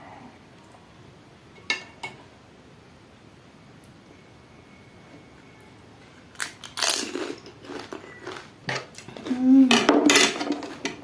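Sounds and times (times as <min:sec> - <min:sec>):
crisp shells crunching: 0:06.4 - 0:08.5
person humming: 0:09.2 - 0:09.9.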